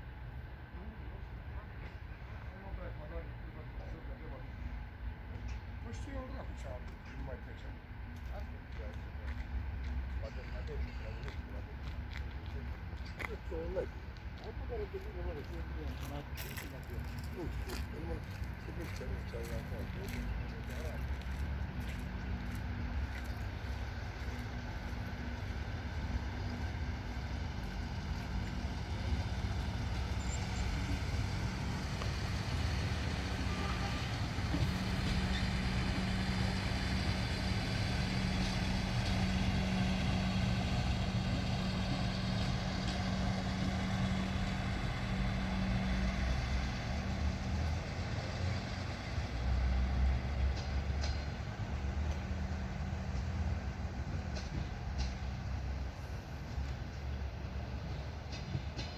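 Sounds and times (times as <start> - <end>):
train rumble: 0.0 - 58.9
droning hum: 7.6 - 47.2.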